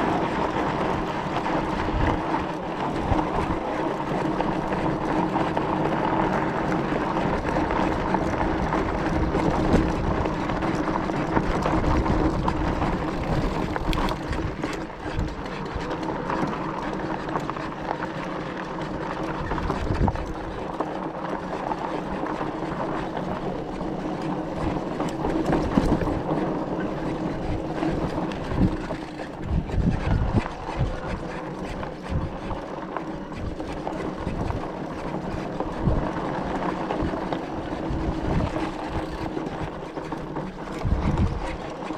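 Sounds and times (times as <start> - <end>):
wind noise on microphone: 0.0 - 16.9, 19.2 - 20.8, 21.6 - 41.9
tyres rumbling on dirt: 0.0 - 18.1
electric motor hum: 12.5 - 14.6.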